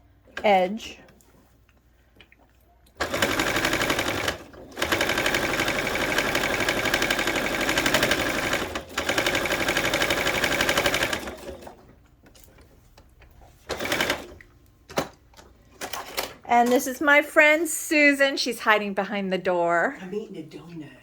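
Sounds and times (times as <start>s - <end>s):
sewing machine stitching: 3.0s - 11.9s, 13.7s - 14.4s.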